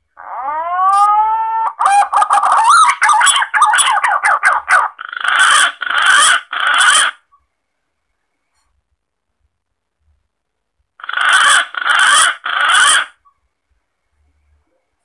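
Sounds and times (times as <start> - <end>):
pigeon calls: 0.9 - 7.2, 11.0 - 13.3.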